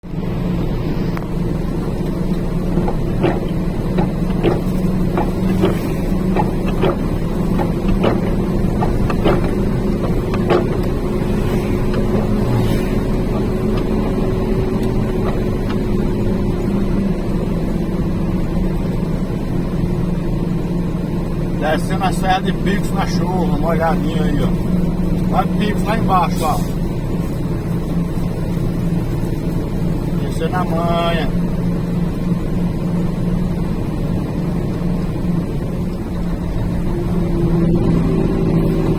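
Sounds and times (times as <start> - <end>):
truck engine low drone: 0.0 - 38.9.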